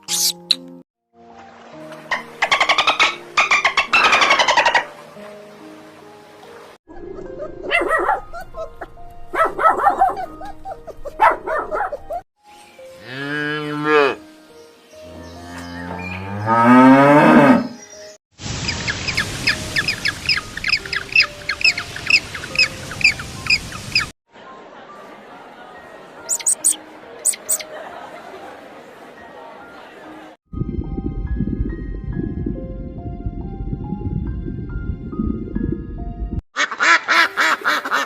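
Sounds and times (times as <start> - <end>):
rapid high chirping: 0.0 - 0.6, 26.3 - 27.6.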